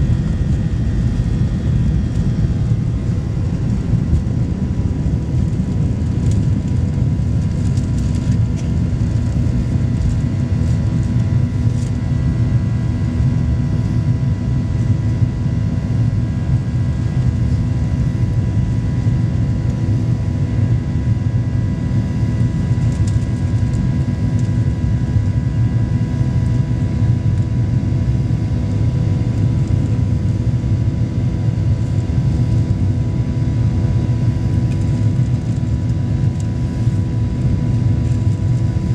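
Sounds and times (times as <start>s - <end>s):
jet engines rumbling: 0.0s - 11.8s.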